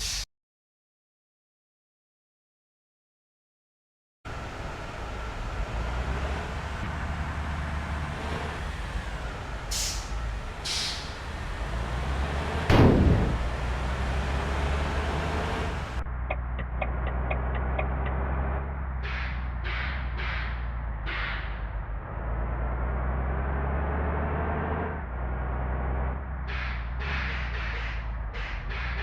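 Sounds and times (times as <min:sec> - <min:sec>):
air brake hissing: 0:00.0 - 0:00.2, 0:08.8 - 0:13.8
loud air burst: 0:00.0 - 0:00.2, 0:09.7 - 0:11.3
bus engine running: 0:04.3 - 0:29.0.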